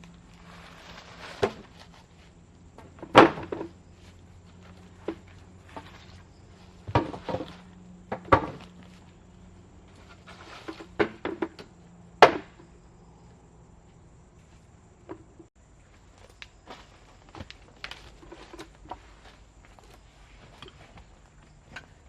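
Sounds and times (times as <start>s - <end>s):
wood being struck: 12.2s - 12.6s.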